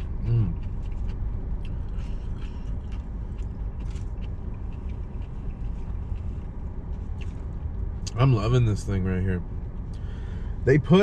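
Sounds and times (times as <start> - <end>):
person chewing: 0.0 - 8.2.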